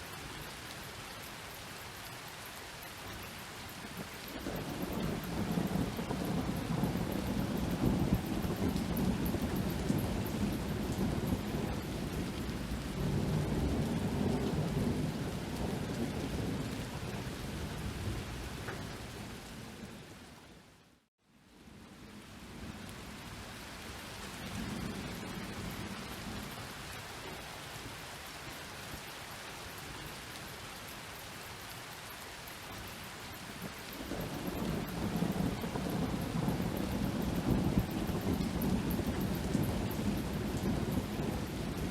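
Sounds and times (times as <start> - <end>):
steady rain: 0.0 - 41.9
low rolling thunder: 4.3 - 20.0, 24.3 - 27.5, 33.6 - 41.9.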